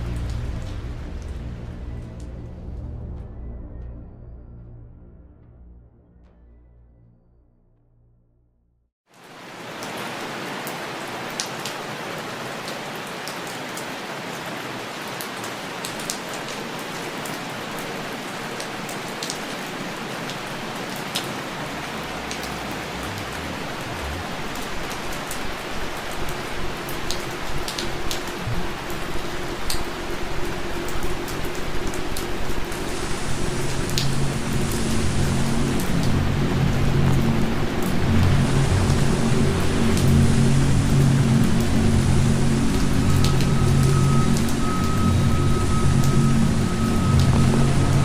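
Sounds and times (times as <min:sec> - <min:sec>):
steady rain: 0:00.0 - 0:02.9, 0:09.1 - 0:48.0
low rumble: 0:00.0 - 0:08.8, 0:20.6 - 0:25.9, 0:28.4 - 0:48.0.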